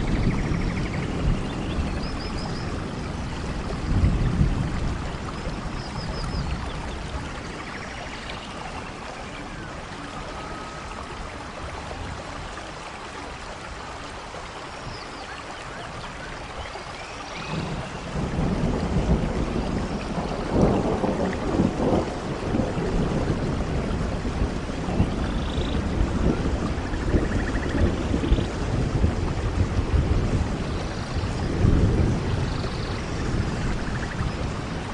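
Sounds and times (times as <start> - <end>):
thunder rumbling: 0.0 - 11.2, 17.4 - 34.9
rain hiss: 0.0 - 34.9
faint bird chirps: 7.7 - 11.1.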